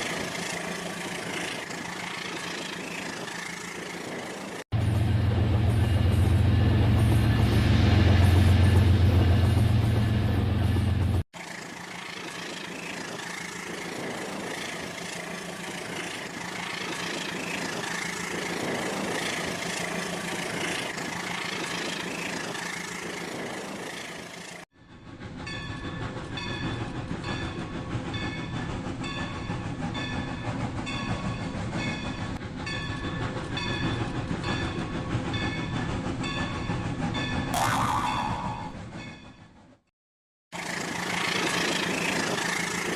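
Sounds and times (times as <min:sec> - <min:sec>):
toy train running: 0:11.4 - 0:24.6, 0:40.6 - 0:42.9.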